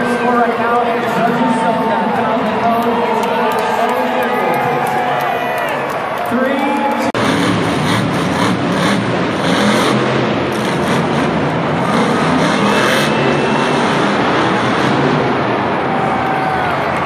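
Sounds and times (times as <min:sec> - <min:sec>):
monster truck engine running: 0:07.2 - 0:17.0.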